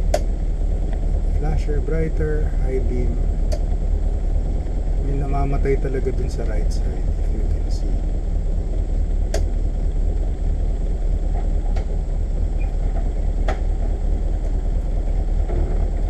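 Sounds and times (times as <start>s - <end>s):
car engine idling: 0.0s - 16.0s
short light clicks: 9.3s - 9.5s.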